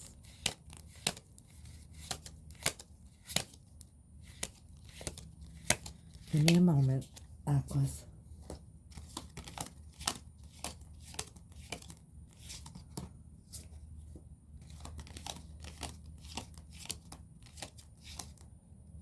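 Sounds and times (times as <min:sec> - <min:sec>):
cards clicking and rustling: 0:00.0 - 0:07.3, 0:08.4 - 0:13.8, 0:14.6 - 0:18.5.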